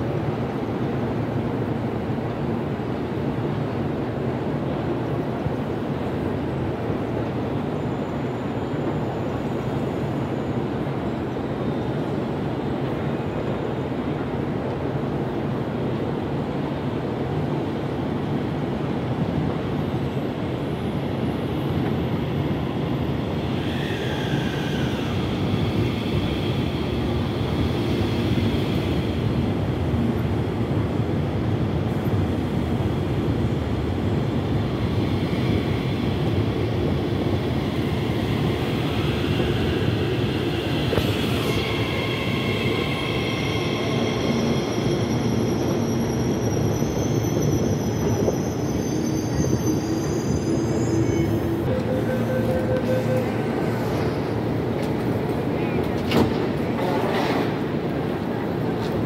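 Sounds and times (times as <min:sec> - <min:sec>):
train wheels and motors rumbling: 0:00.0 - 0:59.0
high-pitched whine: 0:35.2 - 0:54.5.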